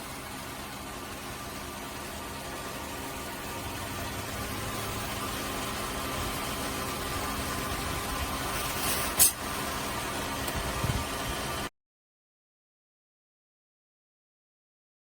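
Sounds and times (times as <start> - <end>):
machine hum: 0.0 - 11.7.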